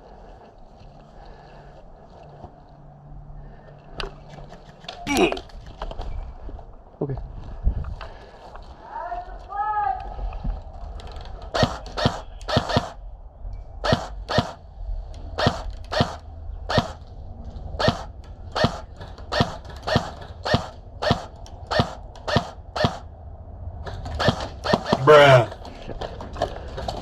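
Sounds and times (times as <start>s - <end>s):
airsoft gun shots: 11.6s - 13.0s, 13.8s - 14.6s, 15.4s - 17.0s, 17.8s - 23.1s, 23.9s - 25.5s.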